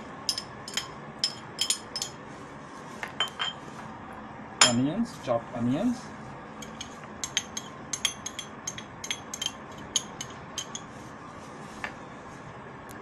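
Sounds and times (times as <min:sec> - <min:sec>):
spoon clinking against bowl: 0:00.3 - 0:02.2, 0:04.6 - 0:04.8, 0:06.6 - 0:10.9.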